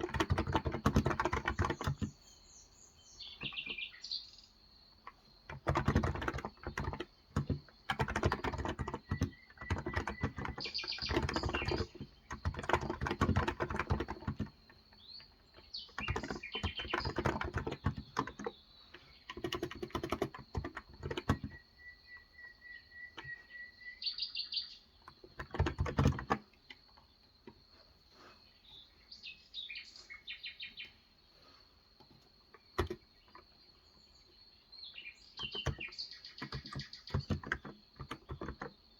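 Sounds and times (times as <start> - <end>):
keyboard typing: 0.0 - 2.2, 5.0 - 21.6, 25.0 - 26.9, 32.8 - 33.4, 35.4 - 38.8
birds chirping: 0.0 - 38.9.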